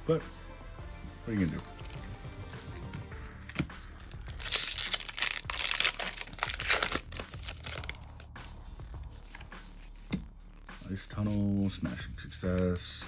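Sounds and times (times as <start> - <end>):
foil wrapper tearing and crinkling: 2.6 - 8.3
sharp crackles: 4.2 - 8.1.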